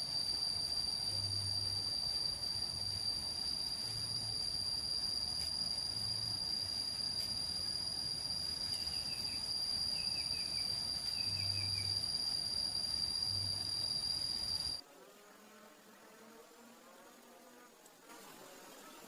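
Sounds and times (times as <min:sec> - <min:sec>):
insects trilling: 0:00.0 - 0:14.8.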